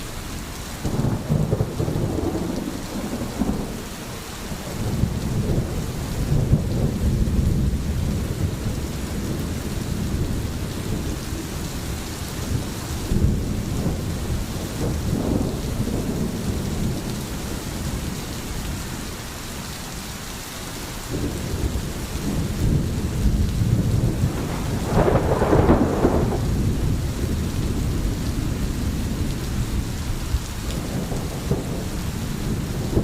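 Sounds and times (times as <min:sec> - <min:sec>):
steady rain: 0:00.0 - 0:33.0
rolling thunder: 0:00.8 - 0:19.1, 0:21.1 - 0:33.0.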